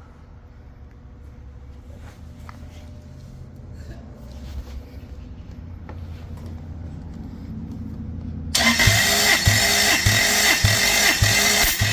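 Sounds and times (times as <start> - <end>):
engine cranking with starter whine: 8.5 - 11.9.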